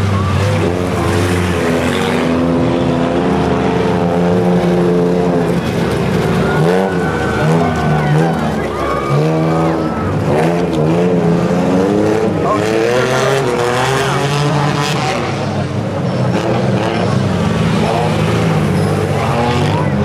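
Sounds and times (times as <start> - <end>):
car engines revving while racing: 0.0 - 20.0
steady bed of engines: 0.0 - 20.0.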